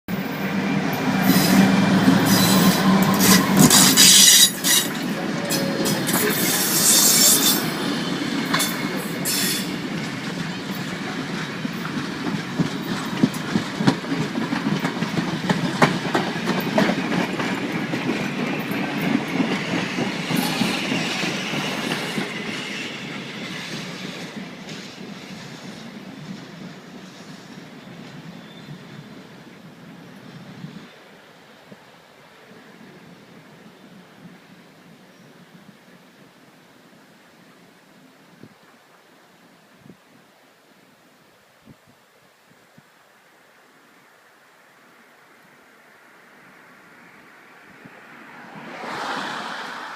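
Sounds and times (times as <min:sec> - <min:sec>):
train wheels clacking on rails: 0:00.5 - 0:29.1
train wheels squealing: 0:00.9 - 0:09.8, 0:18.2 - 0:29.1.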